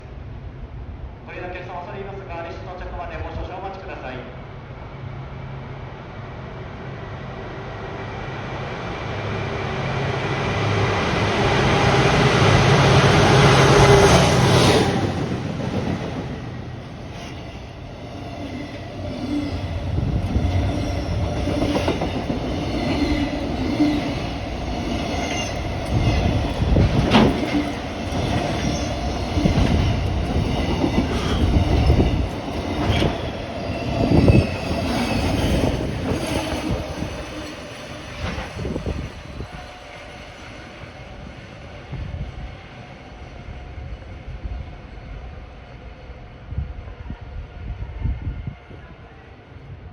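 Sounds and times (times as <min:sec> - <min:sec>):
wheels clattering over rail joints: 0:15.1 - 0:39.0.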